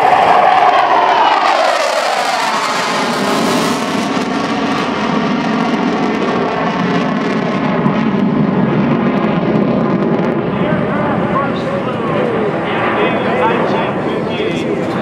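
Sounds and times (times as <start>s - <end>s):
jet aircraft roar: 0.0s - 15.0s.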